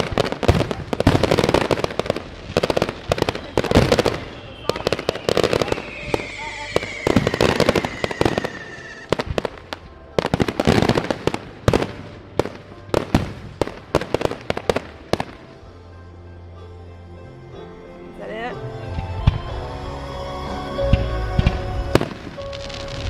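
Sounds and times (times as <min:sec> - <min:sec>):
fireworks bangs and crackling: 0:00.0 - 0:15.7, 0:20.9 - 0:23.0
falling firework whistle: 0:02.6 - 0:09.4.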